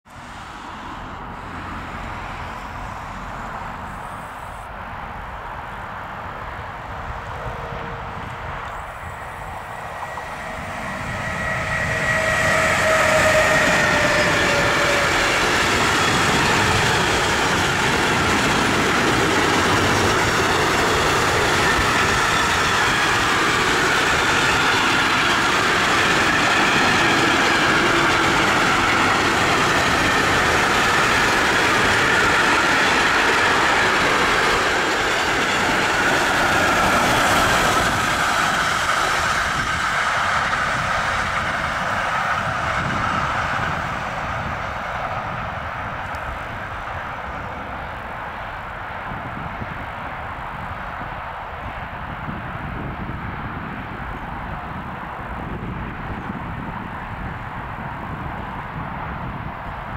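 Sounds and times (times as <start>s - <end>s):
train wheels rumbling on rails: 0.2s - 59.9s
high whining tones: 8.6s - 39.8s.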